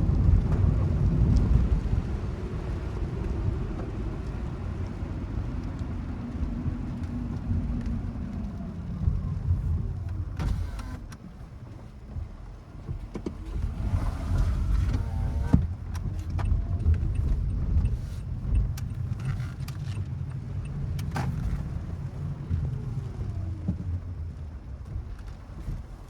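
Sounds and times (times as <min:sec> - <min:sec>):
road and engine rumble: 0:00.0 - 0:26.0
light clicks and ticks: 0:14.8 - 0:21.8.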